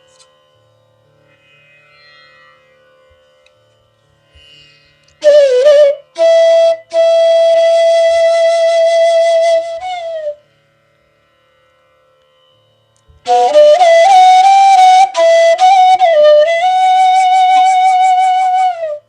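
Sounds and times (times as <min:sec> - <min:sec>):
bamboo flute playing: 0:05.2 - 0:10.5, 0:13.2 - 0:19.0.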